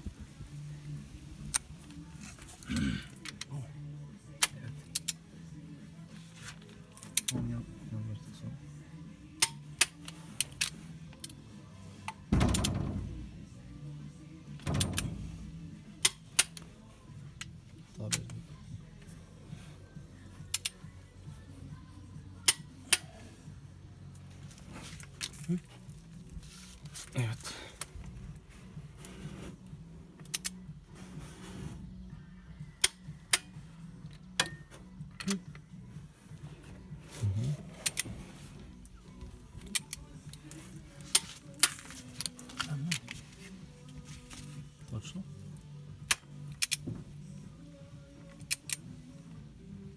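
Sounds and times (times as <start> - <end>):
sharp metallic clicks and knocks: 12.3 - 13.5, 14.6 - 16.7.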